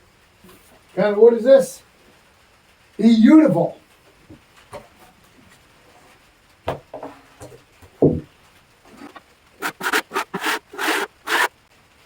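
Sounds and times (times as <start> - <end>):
wooden knocks: 8.0 - 8.3
scraping against wood: 8.9 - 11.5.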